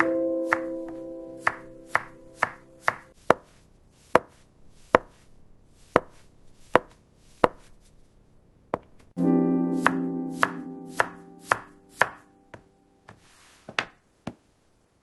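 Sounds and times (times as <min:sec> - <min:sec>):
knife chopping on cutting board: 0:04.1 - 0:04.4, 0:05.0 - 0:05.2, 0:09.8 - 0:12.2.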